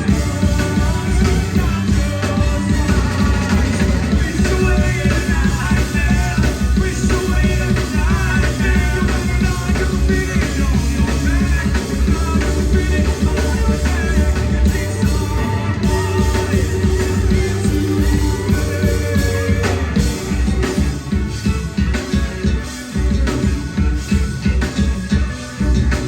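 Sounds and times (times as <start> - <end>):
live rock band playing: 0.0 - 26.0
wavering lead melody: 0.0 - 26.0.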